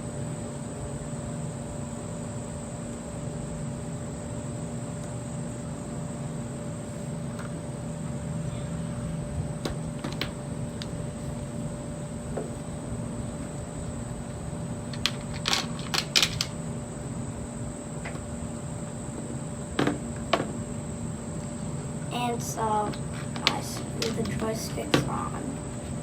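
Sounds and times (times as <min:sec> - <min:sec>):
background hum and hiss: 0:00.0 - 0:26.0
thin high steady tone: 0:22.1 - 0:25.8.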